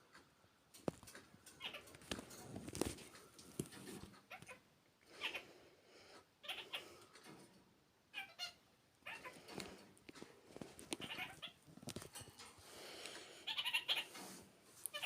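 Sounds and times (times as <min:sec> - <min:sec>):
small clicks and scuffs: 0:00.2 - 0:04.6, 0:09.5 - 0:13.2
parakeet chattering calls: 0:01.6 - 0:01.9, 0:06.4 - 0:06.9, 0:11.0 - 0:11.6, 0:13.4 - 0:14.1.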